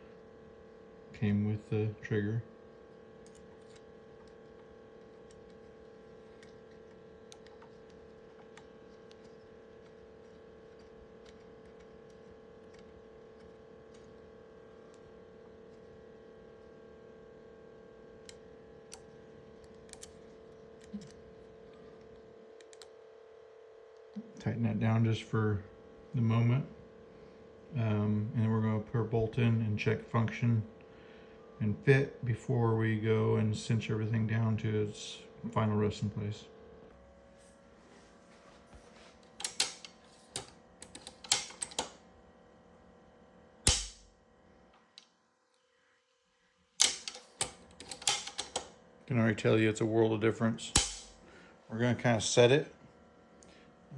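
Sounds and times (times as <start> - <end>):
steady hum: 0.0 - 45.0, 45.7 - 53.9
rifle bolt metallic clicks: 39.4 - 41.9, 43.7 - 44.0, 46.8 - 48.6, 50.8 - 51.2
small metal clicks and taps: 39.4 - 41.9
trigger dry-fire snap: 43.7 - 44.1, 50.8 - 51.2.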